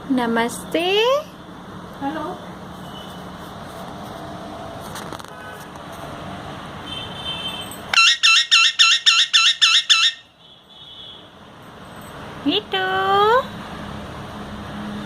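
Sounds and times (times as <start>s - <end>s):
parrot shrill calls: 7.9s - 10.3s.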